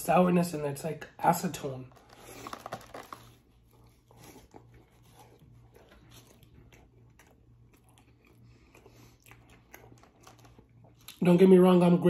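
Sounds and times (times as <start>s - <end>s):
low steady hum: 0.0s - 12.0s
biting and chewing food: 1.9s - 11.5s.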